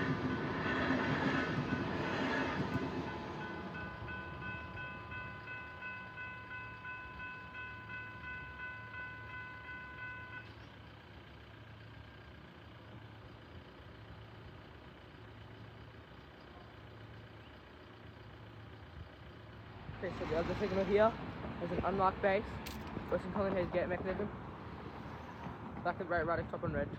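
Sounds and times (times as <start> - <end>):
road traffic hum: 0.0 - 26.9
level crossing warning bell: 1.4 - 10.6.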